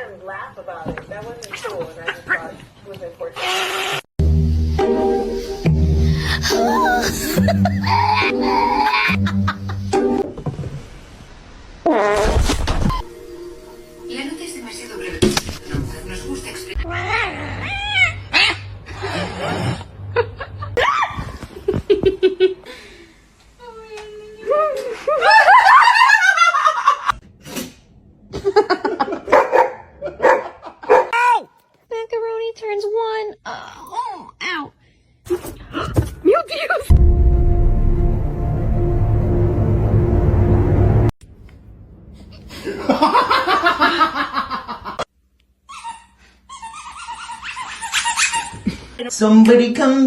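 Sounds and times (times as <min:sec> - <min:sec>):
person laughing hard: 0:06.1 - 0:09.9, 0:42.5 - 0:45.0
dog barking: 0:29.3 - 0:31.2
high-pitched pulsed sound: 0:36.9 - 0:41.1.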